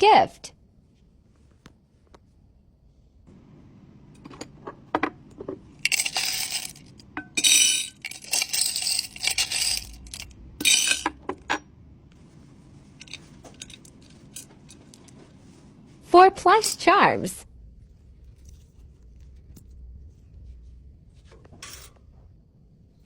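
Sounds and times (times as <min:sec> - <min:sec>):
small hard items clinking: 0:05.8 - 0:11.2, 0:13.0 - 0:15.2.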